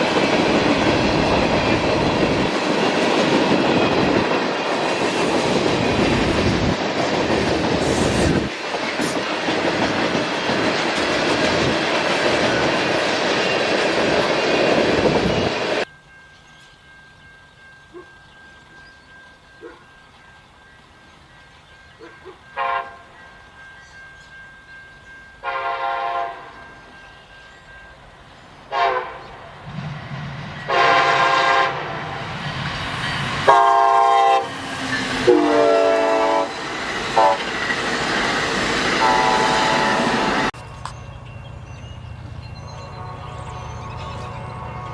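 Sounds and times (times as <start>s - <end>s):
freight train rolling past: 0.0s - 44.9s
locomotive horn blasts: 22.6s - 23.1s, 25.4s - 26.6s, 28.7s - 29.3s, 30.7s - 32.2s, 33.5s - 34.6s, 35.2s - 36.6s, 37.2s - 37.5s, 39.0s - 40.5s, 42.7s - 44.9s.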